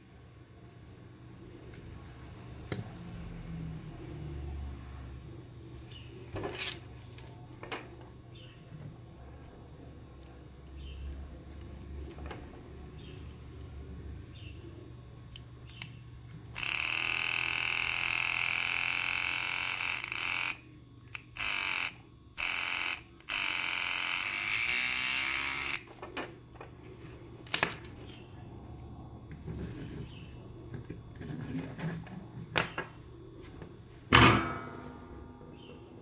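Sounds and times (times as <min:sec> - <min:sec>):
high-voltage arc buzzing: 0:16.6 - 0:25.9.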